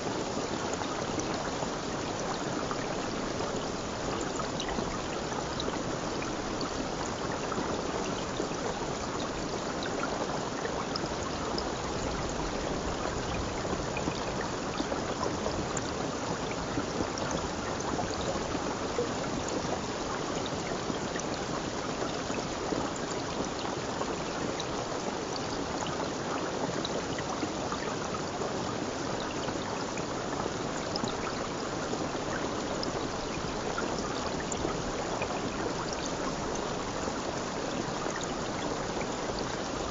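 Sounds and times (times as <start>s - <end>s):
stream of running water: 0.0s - 39.9s.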